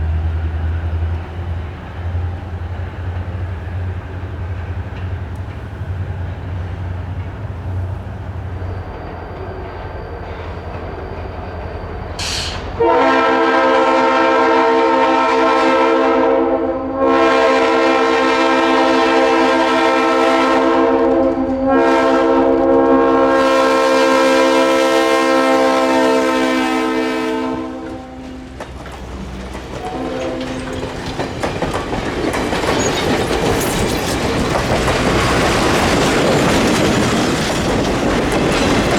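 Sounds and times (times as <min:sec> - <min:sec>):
train wheels clacking on rail joints: 0:00.0 - 0:12.8, 0:27.6 - 0:38.9
diesel locomotive rumble: 0:00.0 - 0:38.9
locomotive air horn blasts: 0:12.4 - 0:28.5, 0:29.8 - 0:30.8.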